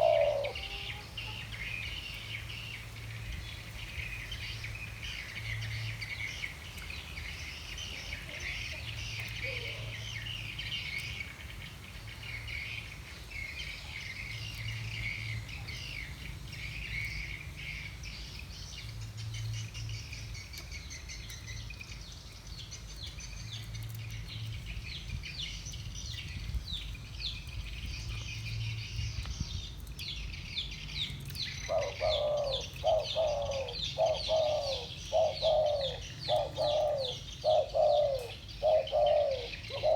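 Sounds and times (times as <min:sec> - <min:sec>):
dove cooing: 0:00.0 - 0:01.5, 0:07.9 - 0:10.2, 0:31.7 - 0:39.9
small birds chirping: 0:00.0 - 0:39.9.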